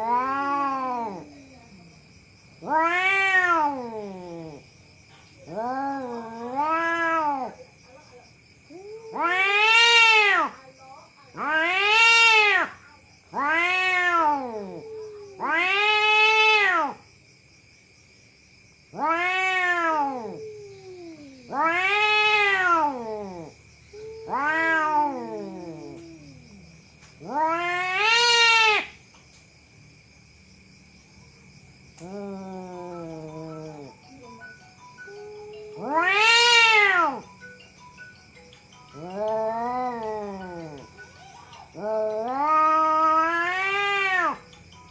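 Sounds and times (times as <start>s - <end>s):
cat yowling: 0.0s - 1.4s, 2.6s - 4.6s, 5.4s - 7.6s, 8.7s - 10.6s, 11.3s - 17.0s, 18.9s - 29.0s, 32.0s - 34.4s, 35.0s - 37.3s, 39.0s - 44.5s
faint steady high tone: 32.7s - 35.9s, 37.1s - 42.3s.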